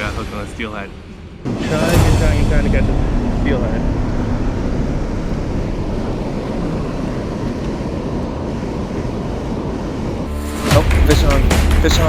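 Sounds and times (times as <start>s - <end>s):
wind rumbling on microphone: 1.3s - 10.3s.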